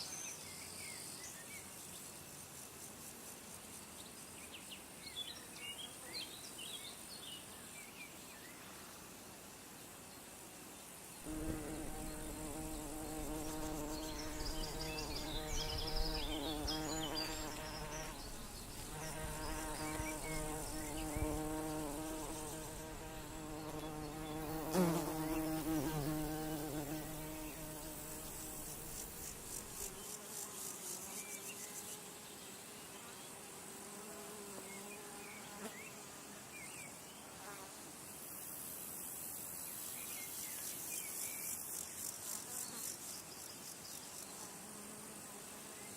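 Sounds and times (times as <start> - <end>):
flying insect buzzing: 10.3 - 45.9
high rapid insect trills: 10.9 - 32.2.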